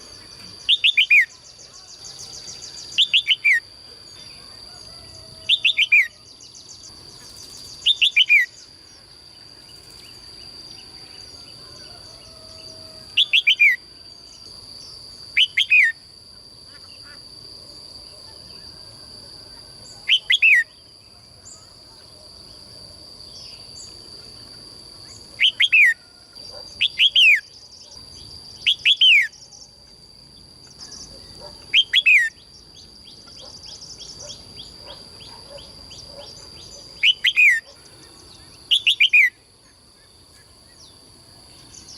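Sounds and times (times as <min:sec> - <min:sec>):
songbird chirping calls: 0:00.4 - 0:16.0, 0:23.3 - 0:29.8, 0:30.6 - 0:41.9.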